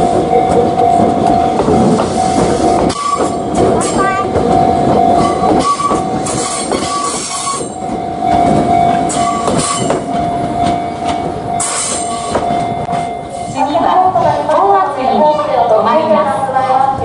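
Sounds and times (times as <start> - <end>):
train wheels clattering: 0.0 - 14.7
train running along track: 0.0 - 17.0.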